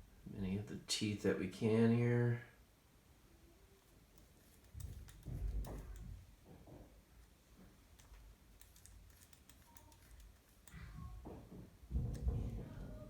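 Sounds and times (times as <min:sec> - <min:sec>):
toothpick clicking on gears: 0:07.9 - 0:11.1
soft low knock: 0:10.8 - 0:13.0.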